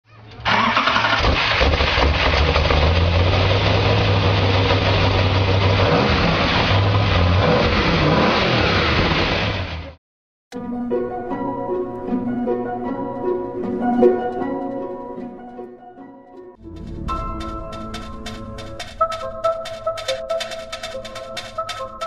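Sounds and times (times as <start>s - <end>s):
car engine revving: 0.4s - 10.0s.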